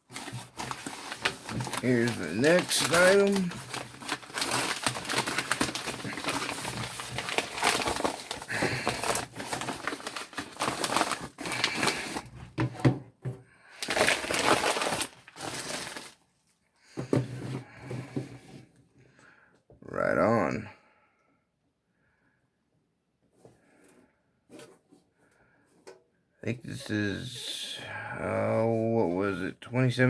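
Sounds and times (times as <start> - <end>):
packaging crinkling and rustling: 0.0 - 12.8, 13.8 - 16.5.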